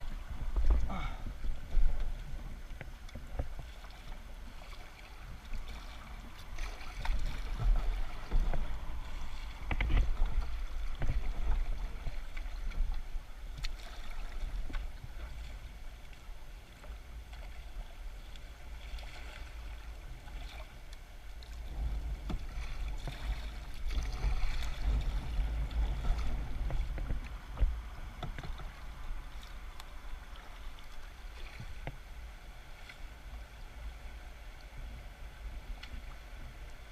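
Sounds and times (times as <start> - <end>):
water splashing: 0.0 - 33.3
wind rumble on microphone: 0.0 - 36.9
paddle knocking on hull: 22.1 - 29.5.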